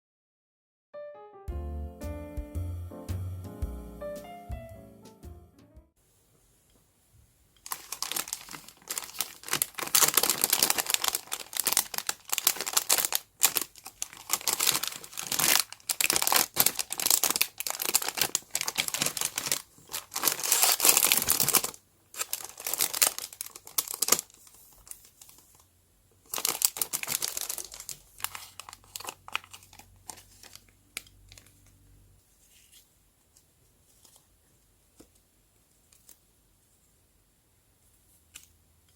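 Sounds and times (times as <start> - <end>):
crinkly packaging rustling: 7.6 - 31.8.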